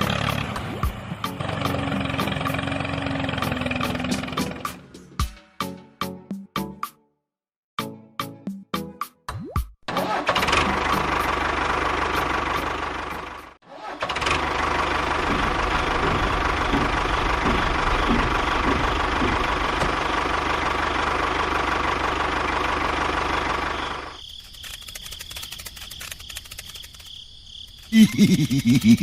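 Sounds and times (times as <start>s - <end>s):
loud low-pitched pulsing: 15.0s - 21.0s
light fast ticking: 24.1s - 29.0s.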